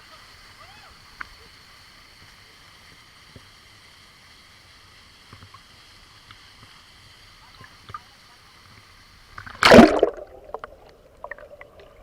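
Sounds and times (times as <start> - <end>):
faint knocks and splashes: 9.4 - 12.0.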